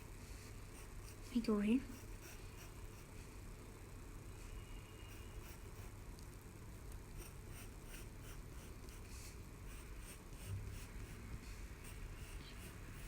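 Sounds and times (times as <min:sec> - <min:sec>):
low room hum: 0:00.0 - 0:13.0
pencil strokes scratching on paper: 0:00.3 - 0:03.3, 0:05.1 - 0:06.0, 0:07.2 - 0:13.0.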